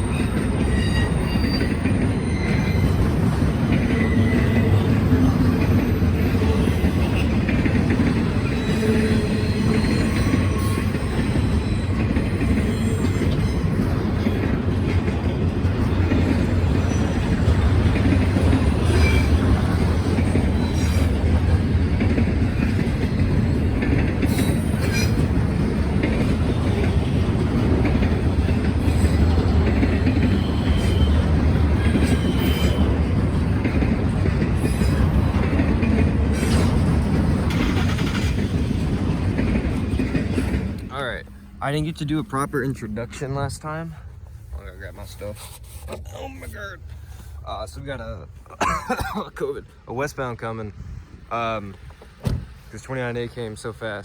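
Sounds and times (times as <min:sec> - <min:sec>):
wheel squeal: 0:00.0 - 0:03.2, 0:03.8 - 0:07.4, 0:08.2 - 0:14.5, 0:18.5 - 0:21.2, 0:30.3 - 0:33.0
wheels clacking over rail joints: 0:00.0 - 0:42.5
freight train cars rolling past: 0:00.0 - 0:45.2, 0:46.6 - 0:54.0.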